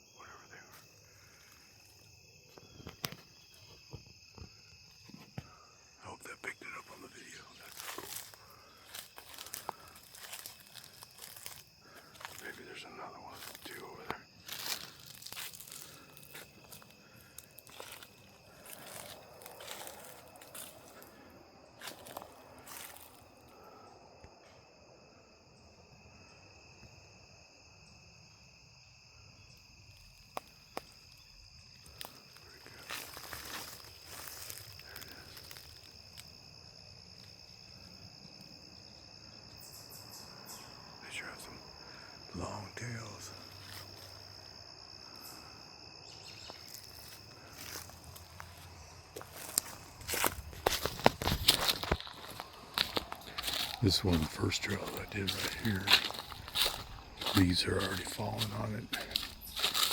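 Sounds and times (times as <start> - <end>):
insects trilling: 0.0 - 59.9
footsteps on dry leaves: 7.2 - 23.2, 31.9 - 35.9, 46.5 - 59.9.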